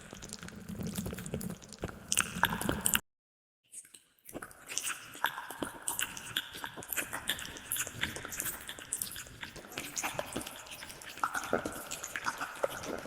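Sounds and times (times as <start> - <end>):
wet mouth clicks and smacks: 0.4 - 3.0.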